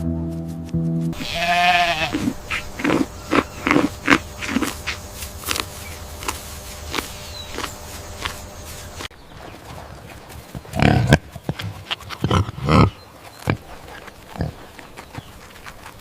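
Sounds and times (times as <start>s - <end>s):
farm animal bleating: 1.1s - 5.7s.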